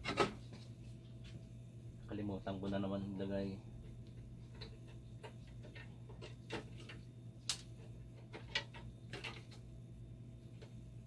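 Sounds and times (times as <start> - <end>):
steady low hum: 0.0 - 11.0
small parts clicking and tapping: 3.8 - 9.7.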